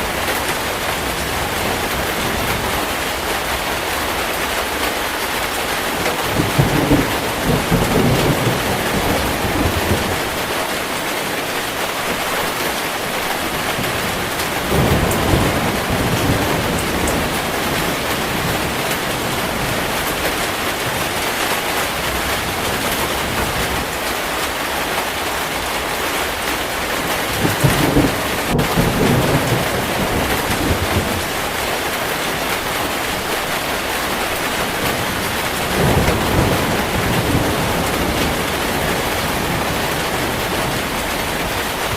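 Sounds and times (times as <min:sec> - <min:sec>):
heavy rain falling: 0:00.0 - 0:41.9
low rolls of thunder: 0:06.0 - 0:10.8, 0:13.5 - 0:21.2, 0:27.0 - 0:41.9.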